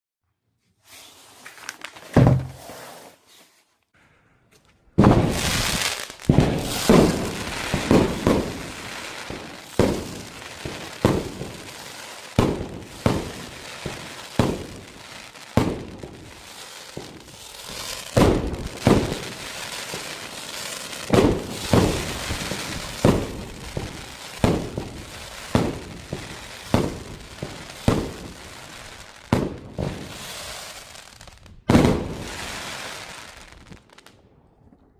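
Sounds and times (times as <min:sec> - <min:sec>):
firework launch thumps: 0:02.1 - 0:02.6, 0:05.0 - 0:08.7
firework bang: 0:05.0 - 0:14.9, 0:17.0 - 0:20.4, 0:21.0 - 0:28.6, 0:31.7 - 0:33.1
firework crackling: 0:05.0 - 0:34.2.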